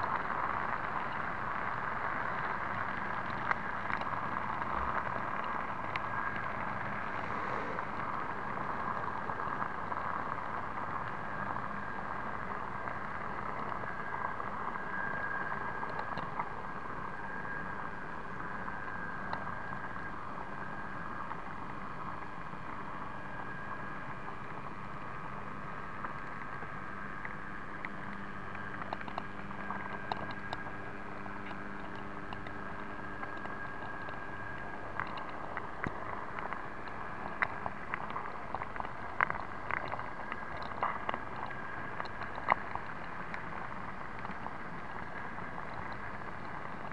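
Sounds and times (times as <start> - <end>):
faint clicks: 27.2 - 46.9.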